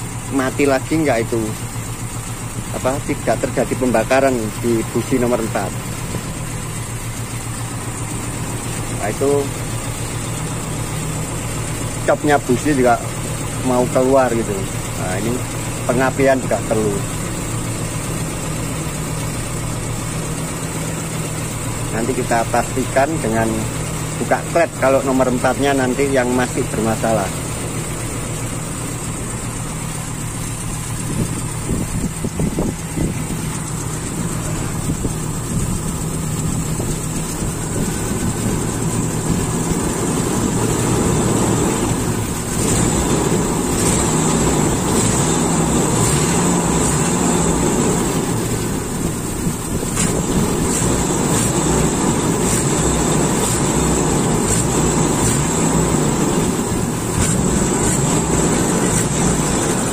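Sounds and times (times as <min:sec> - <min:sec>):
engine rough idle: 0:00.0 - 0:59.9.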